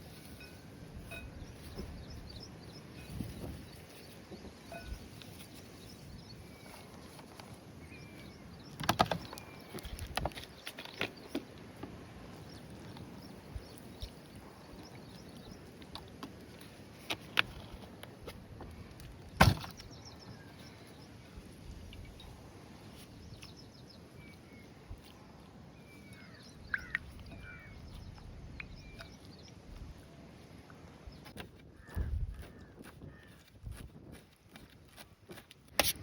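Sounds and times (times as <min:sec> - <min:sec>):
faint bird chirps: 0:00.1 - 0:07.2, 0:25.8 - 0:29.7.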